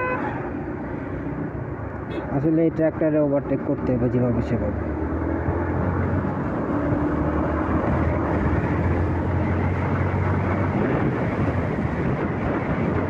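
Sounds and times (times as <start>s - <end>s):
motorcycle engine drone: 4.7s - 13.0s
wind rushing over microphone: 5.0s - 13.0s.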